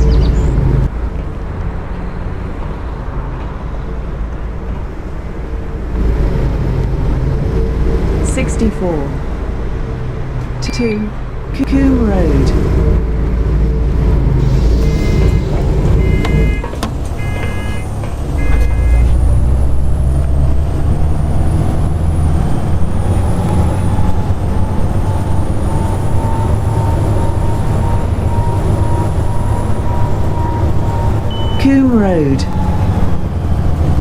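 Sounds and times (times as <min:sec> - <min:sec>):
bus engine running: 0:00.0 - 0:34.0
thin high whine: 0:14.3 - 0:16.7
short electronic beeps: 0:14.5 - 0:19.1, 0:26.2 - 0:32.8.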